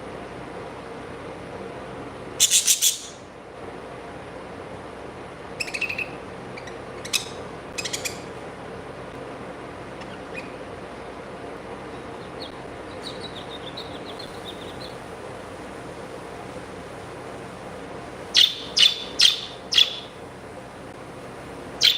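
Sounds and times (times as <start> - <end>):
steady background hum: 0.0 - 21.9
pet birds chirping: 2.4 - 3.2, 5.6 - 8.4, 9.9 - 15.0, 18.3 - 20.2.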